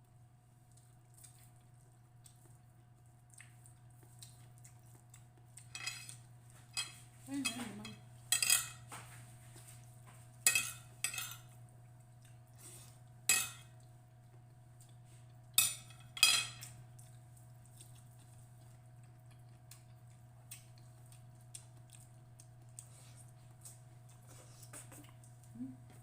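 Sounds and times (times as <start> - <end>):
cutlery clinking on a plate: 5.7 - 9.0, 10.4 - 11.5, 13.3 - 13.7, 15.6 - 16.7.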